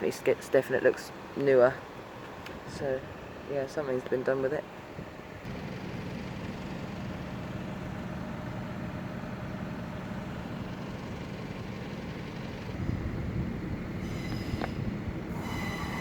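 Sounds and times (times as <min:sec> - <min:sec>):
diesel engine humming: 0:04.6 - 0:16.0
train rumbling: 0:05.5 - 0:16.0.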